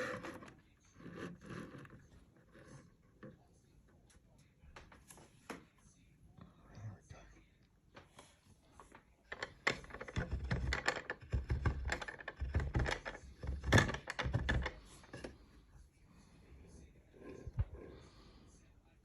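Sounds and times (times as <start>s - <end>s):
small clicks and knocks: 8.8s - 15.3s.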